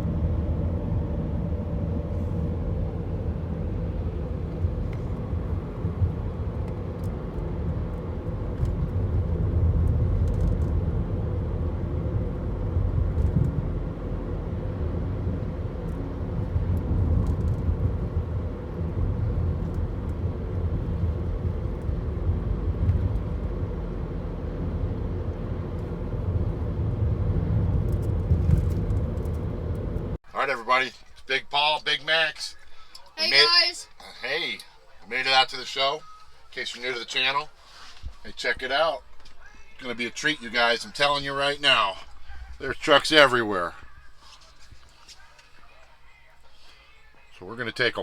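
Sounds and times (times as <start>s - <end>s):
truck diesel engine running: 0.0s - 30.6s
road rumble: 0.0s - 48.0s.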